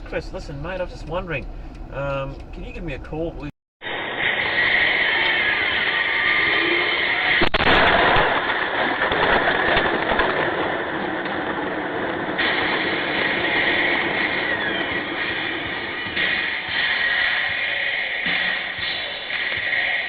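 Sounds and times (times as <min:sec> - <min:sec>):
moving vehicle rumble: 0:00.0 - 0:03.5.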